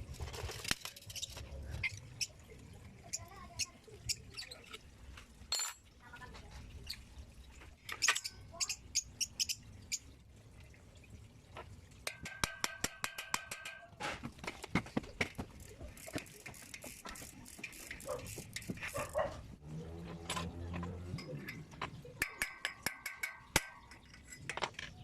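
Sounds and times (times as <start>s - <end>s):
clicks and taps on bicycle parts: 12.0s - 19.2s, 20.2s - 25.0s.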